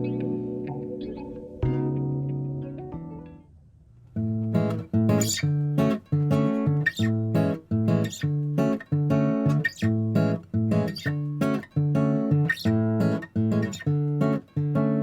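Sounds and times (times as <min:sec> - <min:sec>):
acoustic guitar strumming: 0:00.0 - 0:03.3, 0:04.2 - 0:15.0.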